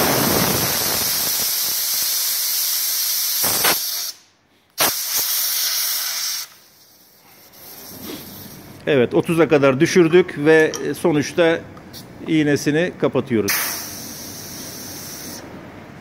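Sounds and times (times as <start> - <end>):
air hissing from tyre valve: 0.0 - 8.8, 13.5 - 15.4.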